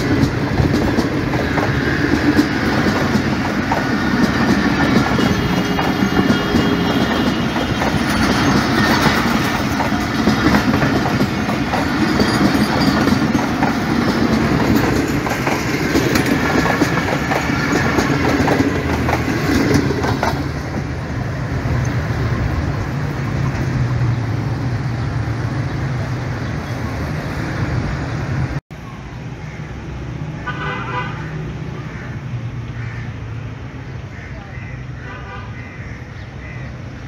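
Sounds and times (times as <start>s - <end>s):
train wheels clacking on rail joints: 0.0s - 23.8s.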